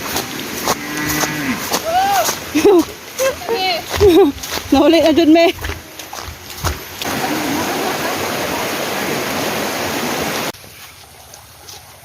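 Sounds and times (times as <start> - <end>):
water rushing: 0.0 - 10.6.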